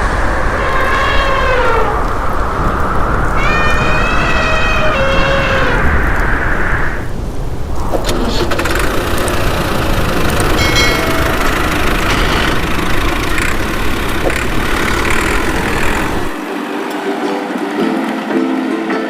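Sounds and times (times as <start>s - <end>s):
engine idling: 8.0s - 16.4s
plucked-string music: 16.3s - 19.0s.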